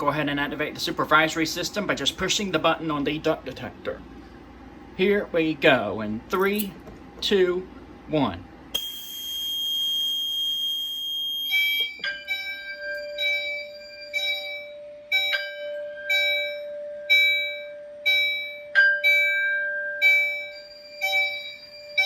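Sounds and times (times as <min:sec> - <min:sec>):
steady high beep: 0:08.8 - 0:22.0
alarm chime tone pattern: 0:11.5 - 0:22.0.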